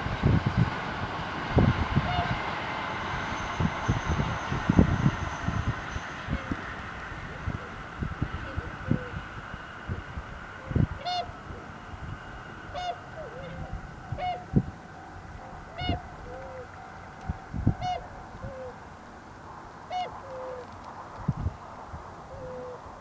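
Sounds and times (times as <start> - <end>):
swans bugling hoots: 6.3 - 9.3, 10.6 - 11.8, 12.6 - 18.8, 19.9 - 20.7, 22.3 - 22.8.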